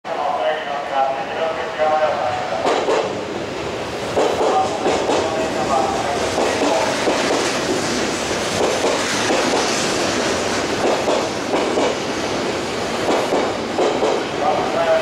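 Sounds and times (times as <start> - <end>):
wheels clacking over rail joints: 2.6 - 3.1, 4.1 - 14.5
electric train running: 2.6 - 15.0.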